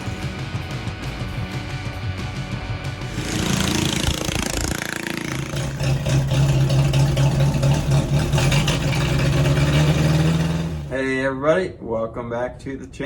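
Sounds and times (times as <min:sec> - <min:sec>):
tractor engine idling: 0:04.0 - 0:11.0.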